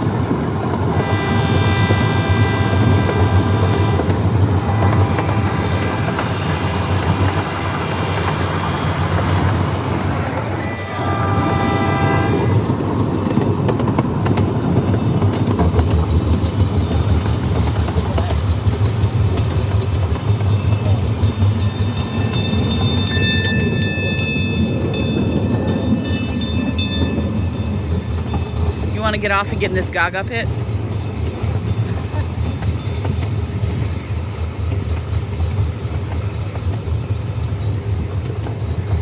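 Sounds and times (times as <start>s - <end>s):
train rumbling along track: 0.0s - 39.0s
train horn blast: 0.8s - 9.0s, 10.3s - 12.7s
wheels clicking over rails: 2.7s - 11.8s, 12.5s - 39.0s.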